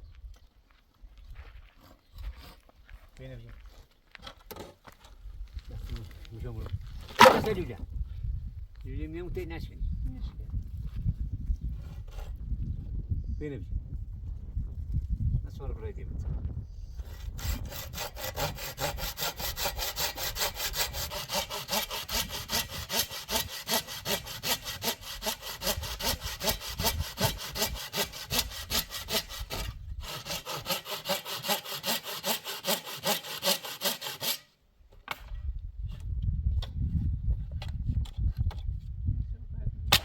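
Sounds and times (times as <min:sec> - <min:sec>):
hand saw strokes: 0:07.2 - 0:07.6, 0:17.0 - 0:34.5.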